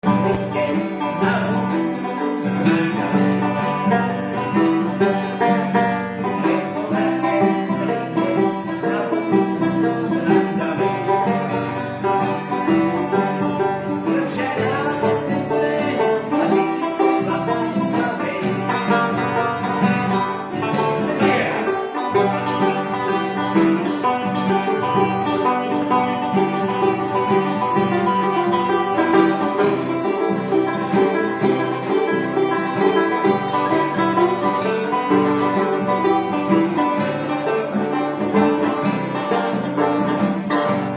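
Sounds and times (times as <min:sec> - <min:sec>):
plucked string music: 0:00.0 - 0:40.9.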